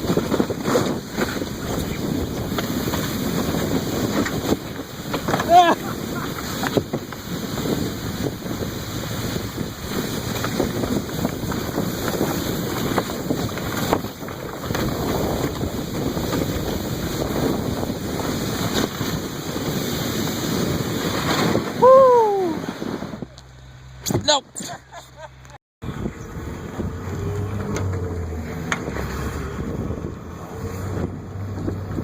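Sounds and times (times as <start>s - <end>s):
sled rushing across snow: 0.0s - 23.3s, 25.8s - 32.0s
wind buffeting microphone: 0.0s - 23.4s, 25.8s - 32.0s
person shouting: 5.4s - 6.1s, 21.8s - 22.6s, 24.2s - 24.8s.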